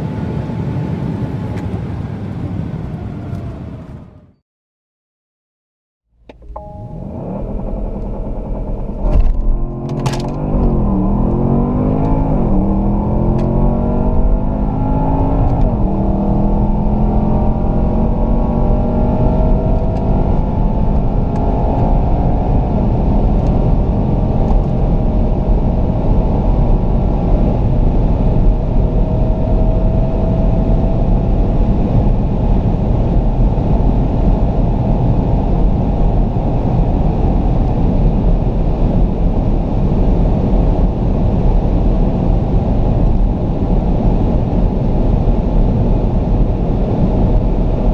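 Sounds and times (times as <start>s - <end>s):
road and wind noise: 0.0s - 4.4s, 6.2s - 47.9s
exhaust cracks: 6.2s - 16.7s
car engine accelerating: 6.2s - 47.9s.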